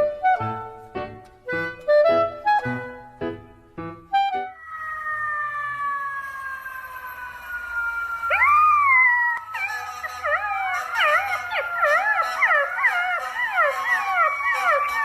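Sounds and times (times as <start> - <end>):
dog howling: 4.6 - 15.0.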